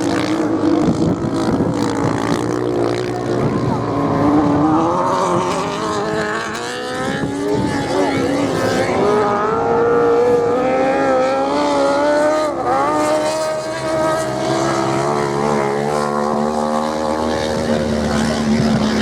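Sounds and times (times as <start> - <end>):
racing motorcycle engines: 0.0 - 19.0.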